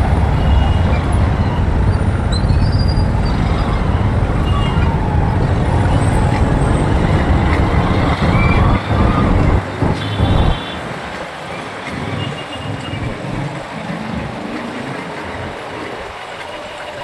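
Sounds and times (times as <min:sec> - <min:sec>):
wind rumble on microphone: 0:00.0 - 0:10.7
motorcycle road noise: 0:00.0 - 0:15.5.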